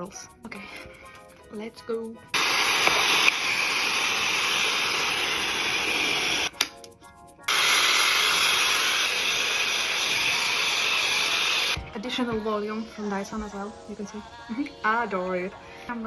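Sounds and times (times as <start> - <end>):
hair dryer blowing: 2.4 - 6.5, 7.5 - 11.8.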